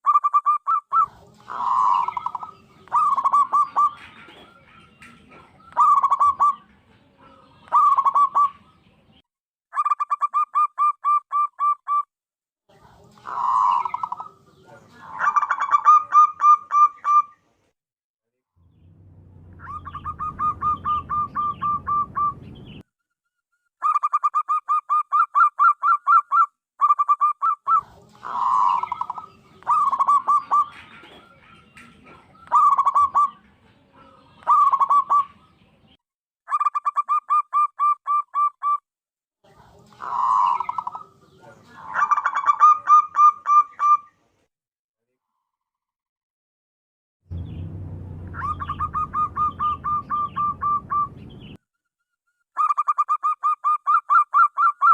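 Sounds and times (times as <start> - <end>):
dove cooing: 0.2 - 8.8, 13.2 - 17.3, 19.6 - 22.6, 27.0 - 35.5, 39.9 - 44.1, 48.4 - 51.2
low rumbling background noise: 18.6 - 22.8, 47.3 - 51.6.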